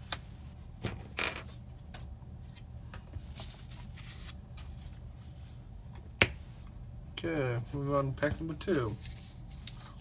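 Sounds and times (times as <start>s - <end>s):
cards and foil wrapper rustling: 8.6s - 10.0s.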